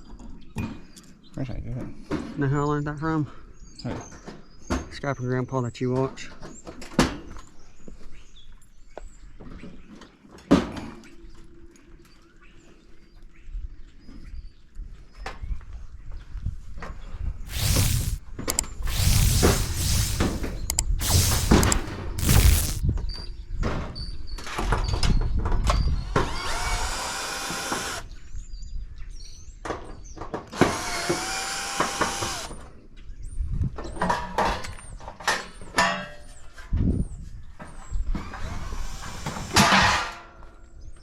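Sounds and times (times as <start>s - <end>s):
cordless drill motor whine: 17.5s - 18.2s, 18.8s - 22.8s, 26.2s - 28.1s, 30.6s - 32.5s, 38.3s - 39.6s.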